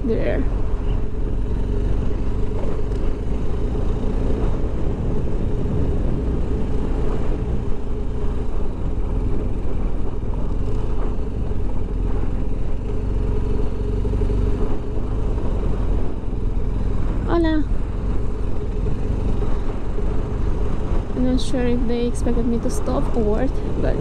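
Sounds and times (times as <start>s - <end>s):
motorcycle engine rumbling: 0.0s - 24.0s.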